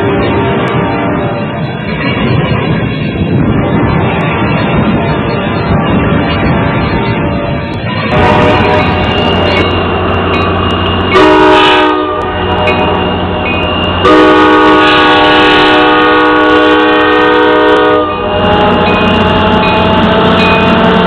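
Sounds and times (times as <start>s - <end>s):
train rumble: 0.0s - 21.0s
locomotive air horn: 8.1s - 9.8s, 10.9s - 21.0s.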